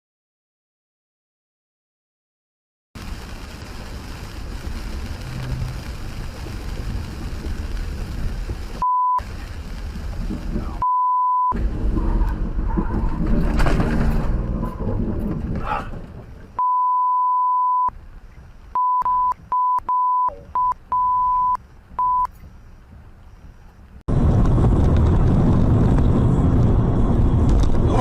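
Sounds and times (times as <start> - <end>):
vehicle noise inside car: 3.0 - 28.0
censor bleeps: 8.8 - 9.2, 10.8 - 11.6, 16.6 - 17.9, 18.7 - 22.4.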